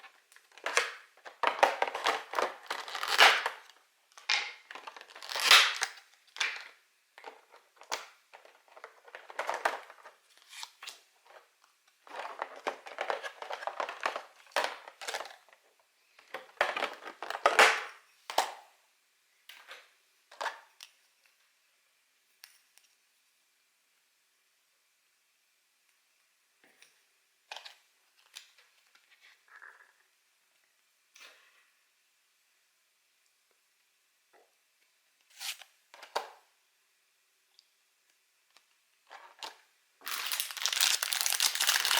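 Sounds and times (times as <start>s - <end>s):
plastic and card crinkling: 0.0s - 17.9s, 39.1s - 41.9s
faint steady hum: 0.0s - 41.9s.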